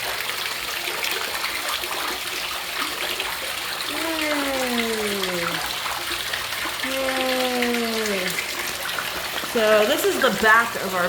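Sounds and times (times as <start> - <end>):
water splashing into floodwater: 0.0 - 11.0
person's long falling voice: 3.9 - 5.6, 6.8 - 8.4.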